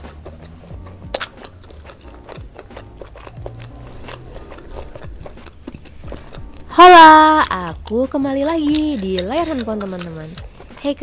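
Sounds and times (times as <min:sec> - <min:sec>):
wet mouth clicks: 0:00.0 - 0:06.7, 0:07.4 - 0:10.9
close-up chewing: 0:00.0 - 0:11.0
soft background music: 0:00.0 - 0:11.0.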